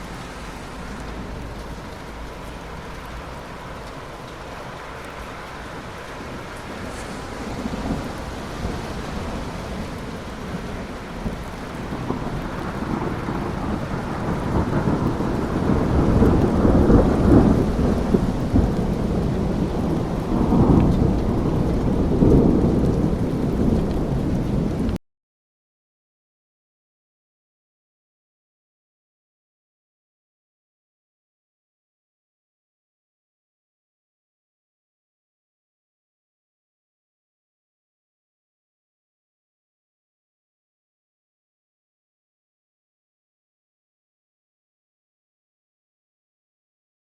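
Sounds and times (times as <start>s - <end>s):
steady rain: 0.0s - 25.0s
thunder rumbling: 0.0s - 25.0s.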